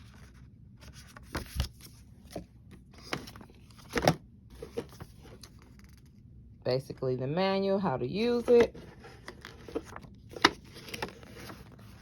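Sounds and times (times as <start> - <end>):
cardboard box being handled: 8.4 - 12.0.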